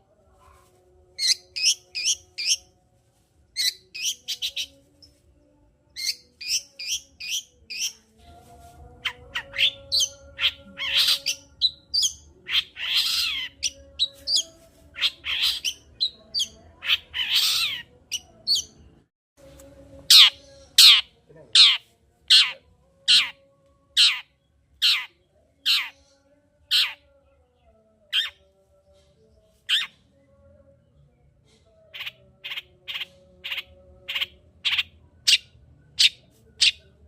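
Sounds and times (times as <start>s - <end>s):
harsh rasping bird calls: 9.0s - 17.9s, 20.1s - 23.4s, 24.0s - 25.1s, 25.7s - 26.0s.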